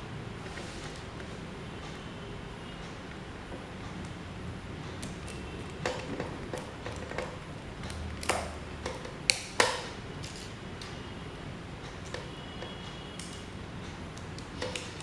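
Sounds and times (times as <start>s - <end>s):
small parts clicking and tapping: 4.9s - 11.0s.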